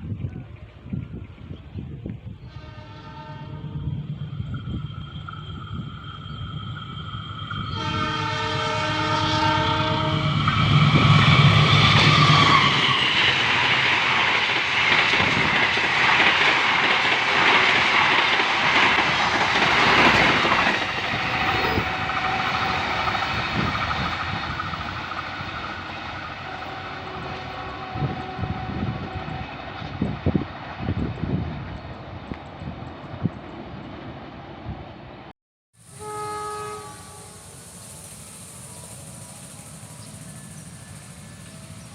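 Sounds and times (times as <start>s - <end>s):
train passing rumble: 0.0s - 41.9s
train horn blasts: 2.4s - 4.6s, 5.5s - 13.0s, 21.0s - 23.4s, 26.4s - 29.8s, 35.8s - 37.6s
wheels clacking over rail joints: 9.8s - 26.8s.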